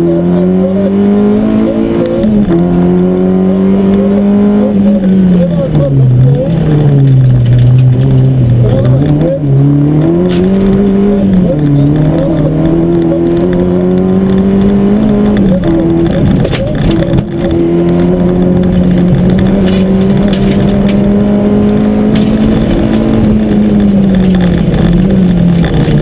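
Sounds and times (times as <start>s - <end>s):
car engine revving from inside: 0.0s - 26.0s.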